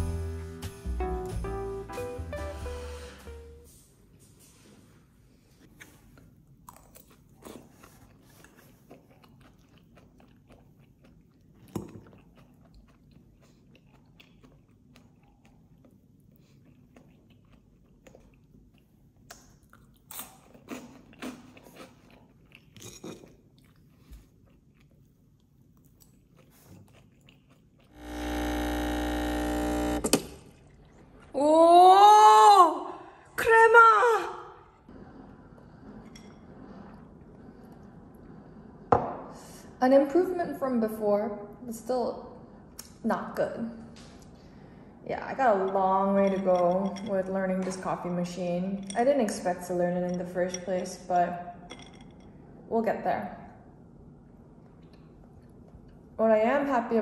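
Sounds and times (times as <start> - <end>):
espresso machine pump buzzing: 28.0 - 30.2.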